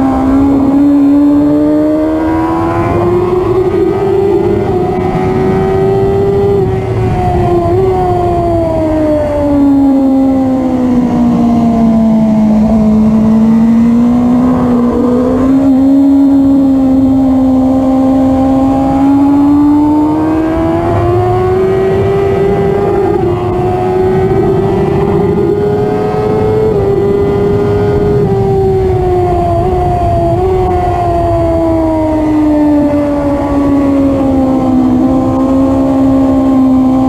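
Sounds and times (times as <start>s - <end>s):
motorcycle engine running hard: 0.0s - 37.0s.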